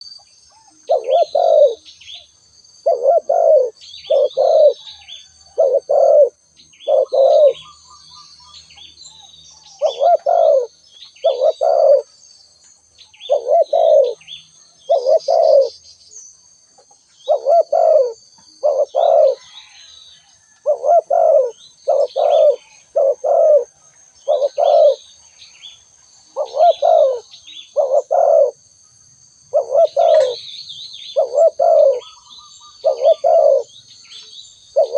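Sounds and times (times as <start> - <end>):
small birds chirping: 0.0 - 34.9
dove cooing: 0.6 - 1.9, 2.8 - 7.8, 9.7 - 12.1, 13.2 - 15.8, 17.2 - 19.8, 20.4 - 25.1, 26.3 - 28.6, 29.5 - 30.5, 31.1 - 33.7.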